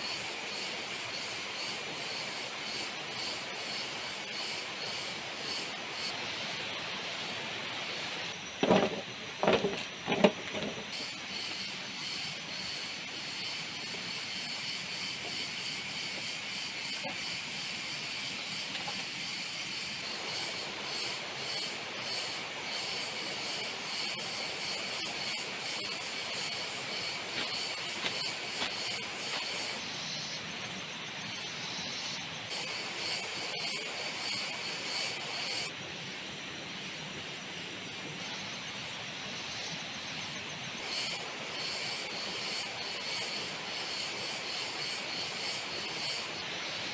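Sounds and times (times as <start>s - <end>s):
heavy rain hissing: 0.0s - 9.6s, 10.9s - 46.9s
high-pitched hiss: 0.0s - 46.9s
loud knocks: 8.6s - 10.8s.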